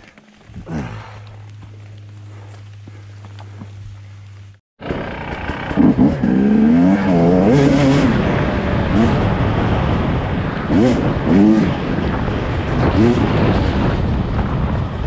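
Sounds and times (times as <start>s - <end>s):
low steady hum: 0.0s - 4.6s
dirt bike engine revving: 4.8s - 12.1s, 12.7s - 14.0s.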